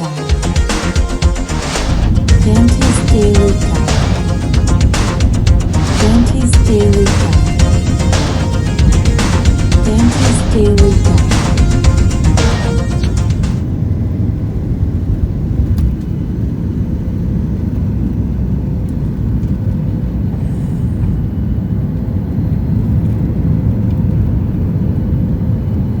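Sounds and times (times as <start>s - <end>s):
jet engine cabin rumble: 0.0s - 26.0s.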